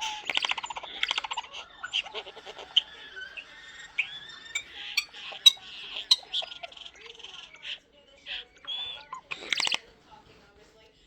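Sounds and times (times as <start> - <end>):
starling singing: 2.4 - 6.9, 7.6 - 9.9.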